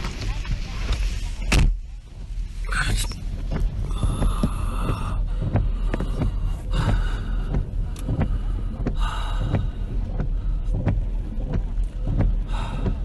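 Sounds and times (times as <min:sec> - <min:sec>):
rain pelting: 0:00.0 - 0:13.0.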